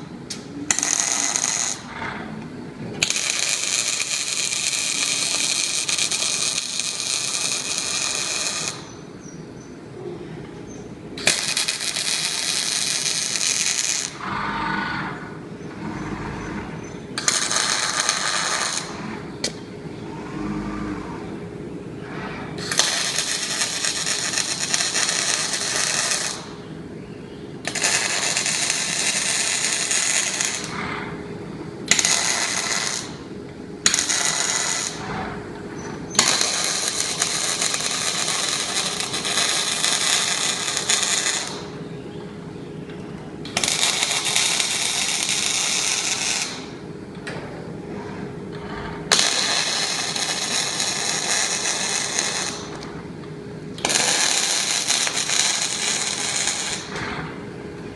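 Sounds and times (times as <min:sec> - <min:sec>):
crackling hissing welding arc: 0:00.0 - 0:02.2, 0:03.0 - 0:09.1, 0:11.2 - 0:14.3, 0:17.2 - 0:19.6, 0:22.6 - 0:26.7, 0:27.6 - 0:31.0, 0:31.8 - 0:41.8, 0:43.5 - 0:46.8, 0:49.1 - 0:53.0, 0:53.7 - 0:57.2
steady machine hum: 0:00.0 - 0:57.9.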